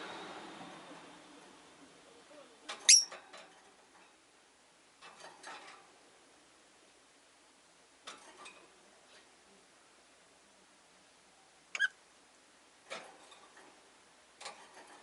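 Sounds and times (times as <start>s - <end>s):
lovebird chirp: 2.8s - 3.2s, 11.7s - 12.0s.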